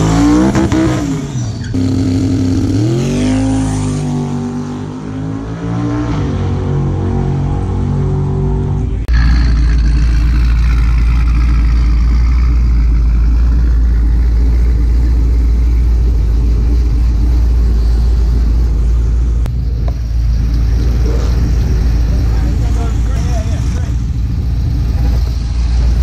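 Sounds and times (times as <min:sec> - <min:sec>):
other car engine: 0:00.0 - 0:26.0
car engine idling loudly: 0:09.0 - 0:26.0.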